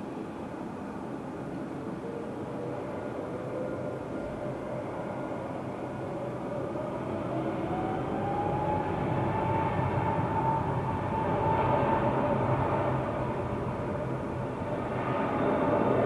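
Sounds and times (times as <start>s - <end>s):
jet engines whining: 0.4s - 16.0s.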